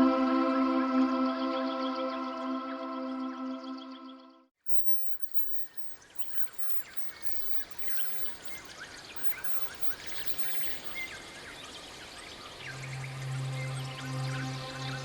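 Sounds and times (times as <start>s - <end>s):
many birds chirping: 5.3s - 13.1s.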